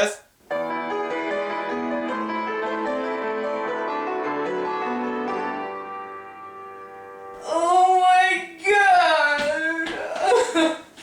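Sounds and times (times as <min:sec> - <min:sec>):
piano music: 0:00.5 - 0:08.5.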